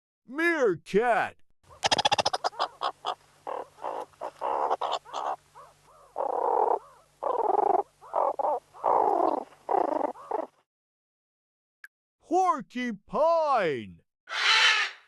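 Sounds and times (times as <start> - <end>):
meerkat harsh calls: 1.7 - 10.6, 14.3 - 15.0.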